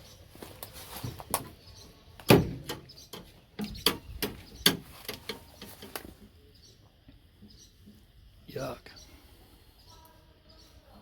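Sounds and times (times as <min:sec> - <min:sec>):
sharp knocks and clicks: 0:02.2 - 0:06.3.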